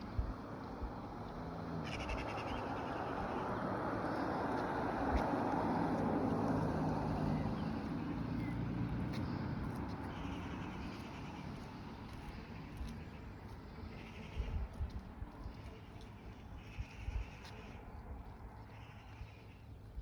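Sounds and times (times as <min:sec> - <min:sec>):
vehicle passing by: 0:00.1 - 0:14.5.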